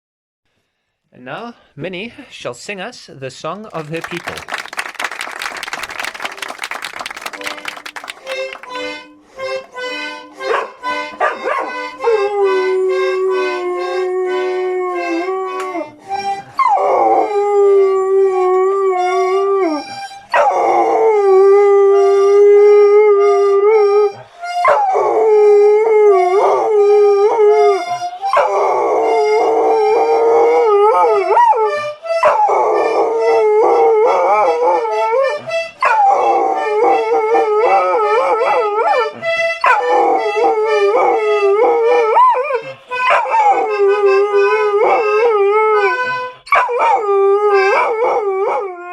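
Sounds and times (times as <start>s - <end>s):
dog howling: 20.4s - 24.0s, 24.6s - 35.2s, 35.8s - 48.9s.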